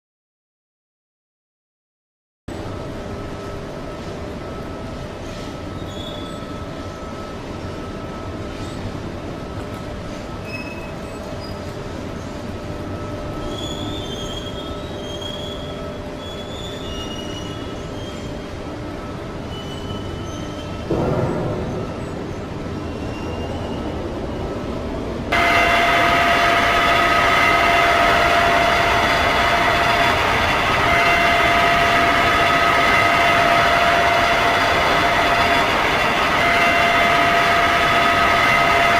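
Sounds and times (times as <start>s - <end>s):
machinery rumbling and humming: 2.5s - 38.9s
short high-pitched squeals: 5.2s - 7.0s, 13.3s - 18.5s, 19.4s - 20.9s, 25.4s - 38.9s
electric drill motor whining: 25.4s - 38.9s.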